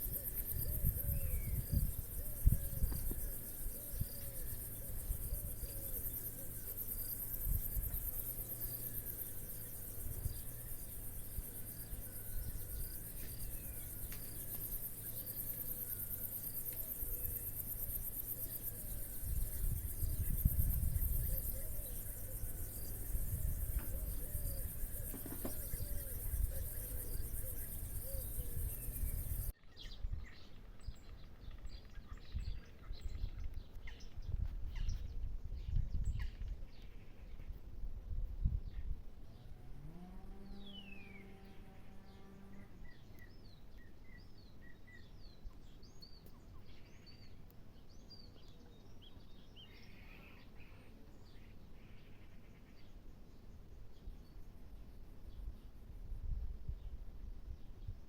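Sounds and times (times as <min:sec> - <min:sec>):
insects stridulating shrill: 0:00.0 - 0:29.5.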